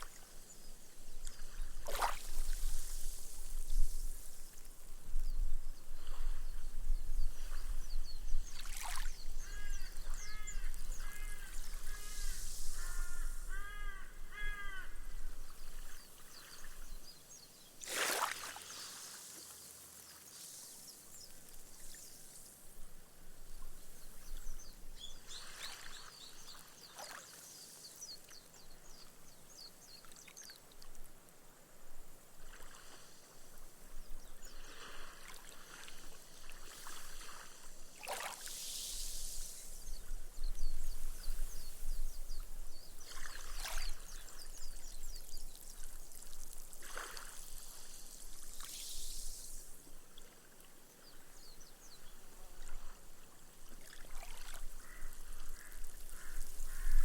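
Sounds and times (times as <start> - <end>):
small waves washing on sand: 1.2 - 4.9, 17.8 - 22.7, 32.3 - 33.8, 34.4 - 40.3, 43.0 - 51.3, 52.6 - 57.0.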